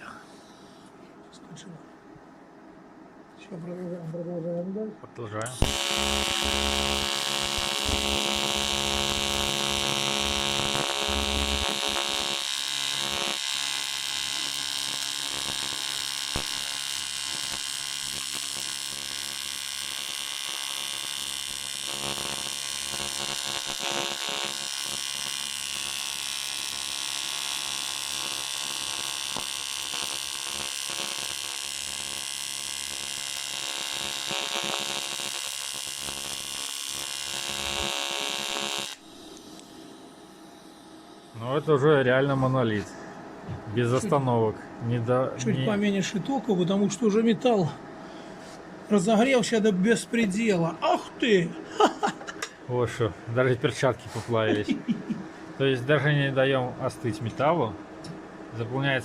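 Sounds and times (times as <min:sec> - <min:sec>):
welding arc buzzing and hissing: 0:05.5 - 0:42.8.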